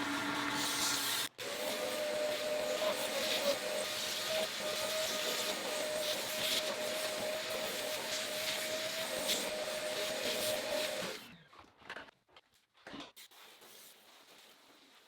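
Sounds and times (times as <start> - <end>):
electric motor whine: 0.0 - 11.3.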